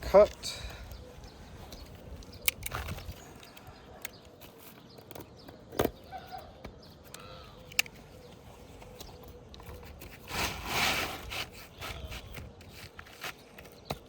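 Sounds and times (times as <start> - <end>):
knocks and clicks of handling shingle: 11.6 - 14.0.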